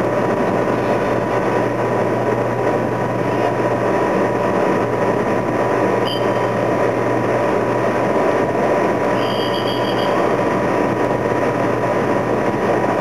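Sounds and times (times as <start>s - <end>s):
engine drone: 0.0s - 13.0s
high-pitched tone: 9.2s - 10.3s.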